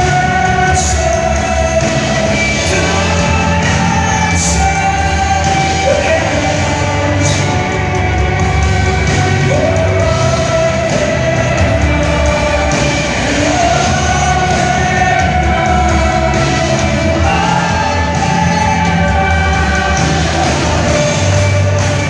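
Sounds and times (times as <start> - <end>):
lead singer holding long notes: 0.0 - 22.0
worship band playing: 0.0 - 22.0.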